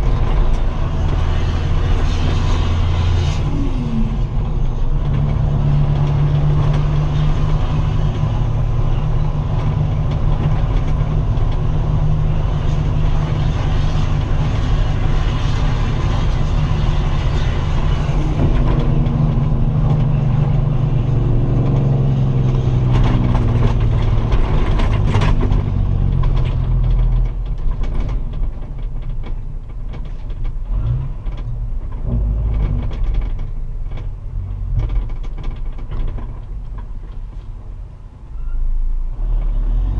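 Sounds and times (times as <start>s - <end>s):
truck diesel engine running loud: 0.0s - 39.9s.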